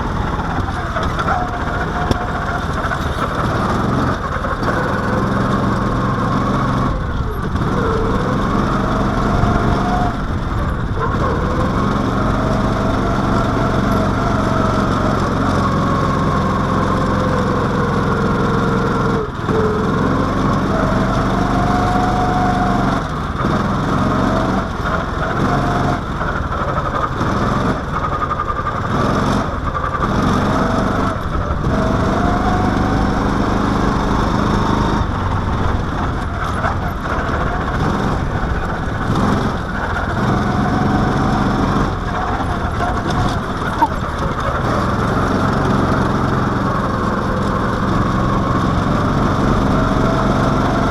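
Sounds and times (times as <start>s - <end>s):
small engine revving: 0.0s - 50.9s.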